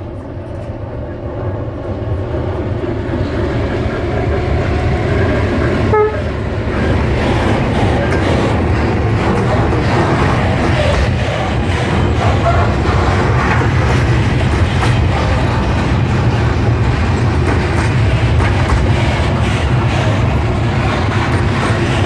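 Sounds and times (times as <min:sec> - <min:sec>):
steel wheels rumbling on rails: 0:00.0 - 0:22.0.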